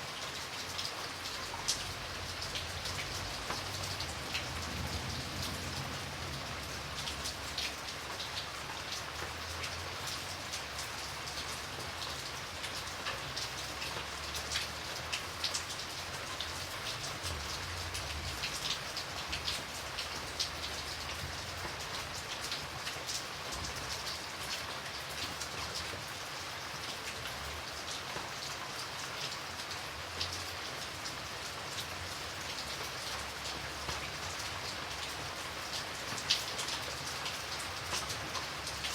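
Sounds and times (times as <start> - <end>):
rain falling: 0.0 - 38.9
raindrops ticking on hard surface: 0.1 - 38.9.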